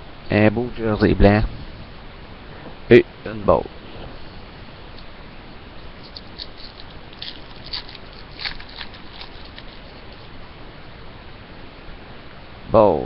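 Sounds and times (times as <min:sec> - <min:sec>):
steady hiss: 0:00.0 - 0:13.0
trading cards rustling: 0:06.0 - 0:10.4.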